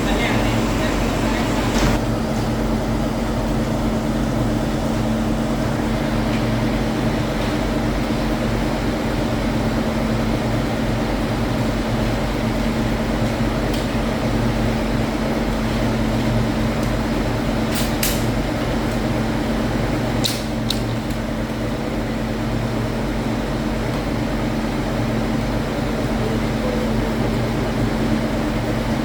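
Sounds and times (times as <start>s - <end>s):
factory machinery humming: 0.0s - 29.0s.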